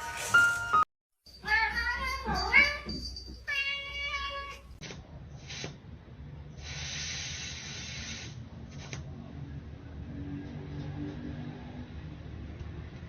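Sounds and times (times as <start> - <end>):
cat hissing: 5.4 - 5.8, 6.6 - 9.0.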